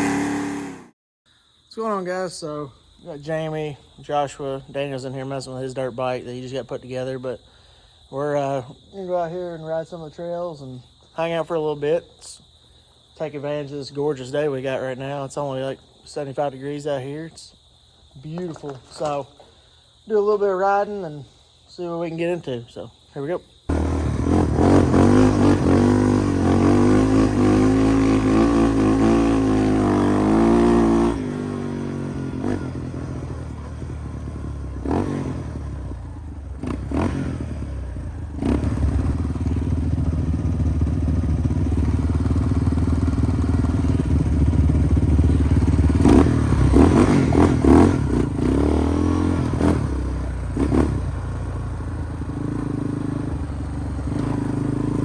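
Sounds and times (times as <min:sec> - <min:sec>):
off-road vehicle engines revving: 0:00.0 - 0:00.9, 0:23.7 - 0:55.0.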